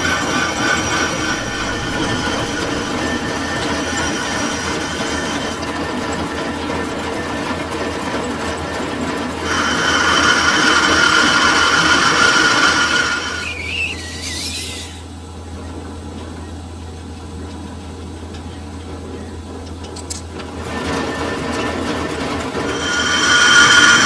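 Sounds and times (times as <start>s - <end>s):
lathe motor hum: 0.0s - 6.4s, 22.6s - 24.0s
lathe tool squealing: 12.9s - 15.1s, 22.6s - 24.0s.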